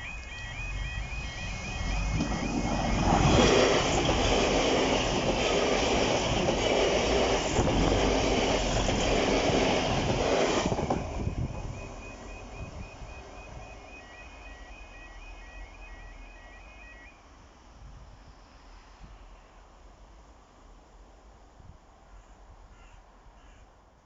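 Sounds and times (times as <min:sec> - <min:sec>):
two-tone crossing alarm: 0:00.0 - 0:05.3, 0:11.2 - 0:17.2
train wheels rushing on rails: 0:00.0 - 0:15.5.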